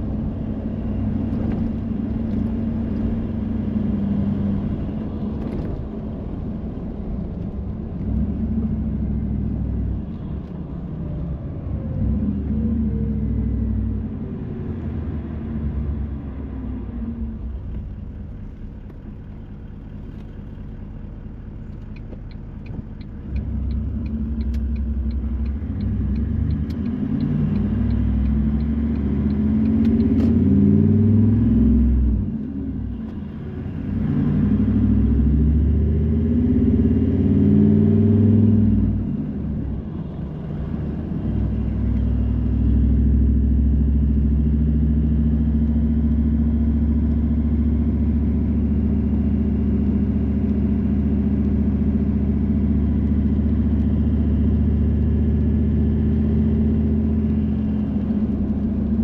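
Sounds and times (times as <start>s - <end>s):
car engine and road rumble: 0.0s - 59.0s
light even ticking: 21.6s - 30.2s.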